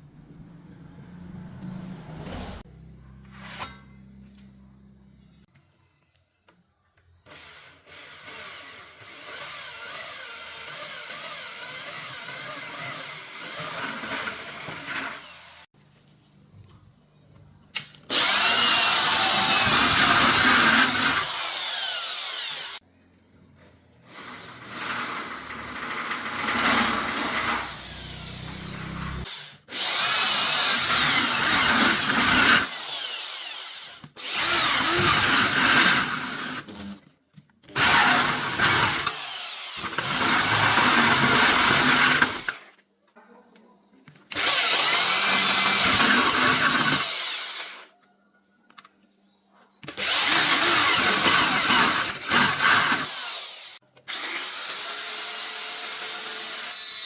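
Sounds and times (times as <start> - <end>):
power tool running: 0.0 - 2.6, 7.3 - 15.7, 18.1 - 22.8, 24.1 - 37.0, 37.7 - 42.6, 44.3 - 47.9, 49.8 - 57.0.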